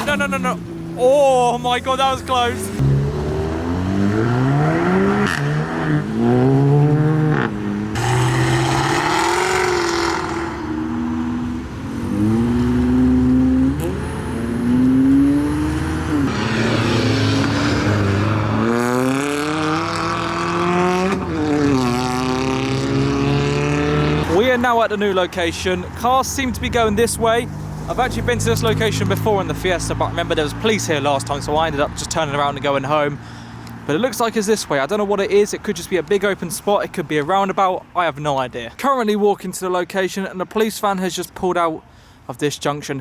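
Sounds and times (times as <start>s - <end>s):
cars accelerating and revving: 0.0s - 32.7s.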